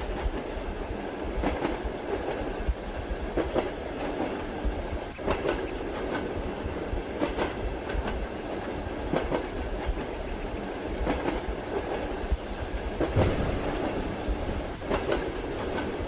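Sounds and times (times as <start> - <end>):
train rumbling: 0.0 - 16.0
wheels clacking over rail joints: 1.4 - 6.4, 11.0 - 16.0
light rain patter: 11.0 - 16.0.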